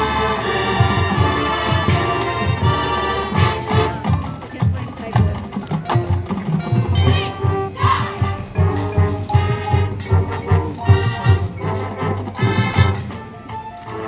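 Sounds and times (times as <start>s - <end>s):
marching band playing: 0.0s - 14.0s
drum strikes: 0.8s - 13.2s
cymbal crashes: 1.9s - 2.6s.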